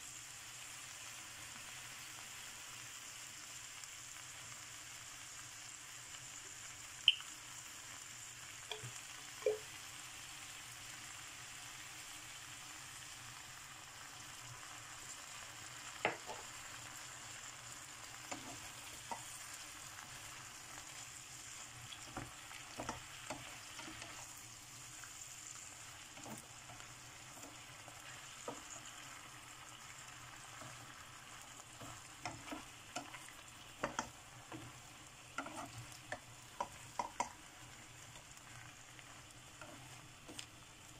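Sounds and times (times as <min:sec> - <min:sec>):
food frying in a hot pan: 0:00.0 - 0:40.9
spatula scraping and knocking pan: 0:16.0 - 0:16.5, 0:22.0 - 0:24.3, 0:26.1 - 0:28.9, 0:31.6 - 0:37.4.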